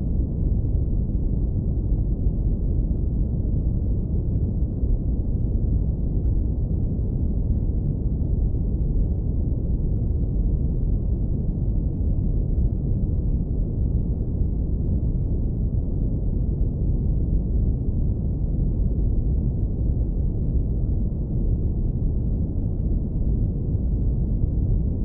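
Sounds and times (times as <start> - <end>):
deep brown noise rumble: 0.0 - 25.0.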